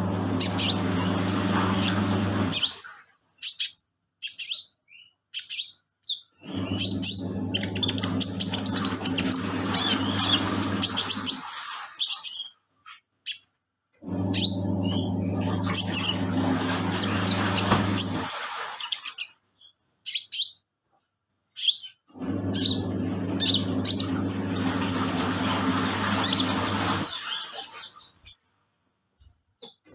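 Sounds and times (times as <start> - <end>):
washing machine motor humming: 0.0 - 3.0, 6.4 - 11.9, 14.0 - 18.8, 22.1 - 28.2.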